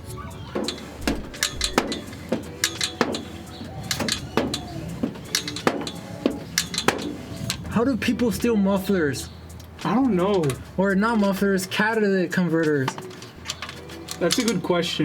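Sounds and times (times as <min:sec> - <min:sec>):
squeaky metallic ring: 0:00.1 - 0:07.7
pipe cutter clicking on metal: 0:00.6 - 0:07.6.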